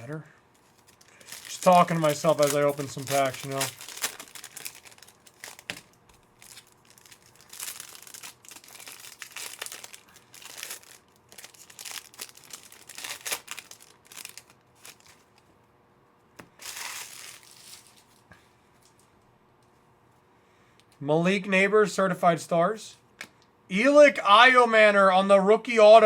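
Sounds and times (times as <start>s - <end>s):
card pack wrappers tearing and crinkling: 0.0s - 15.3s, 16.5s - 18.2s.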